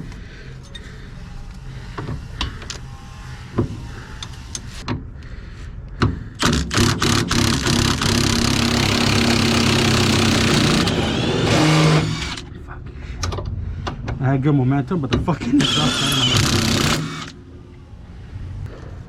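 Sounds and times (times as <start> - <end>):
impact wrench hammering: 6.0 - 12.4.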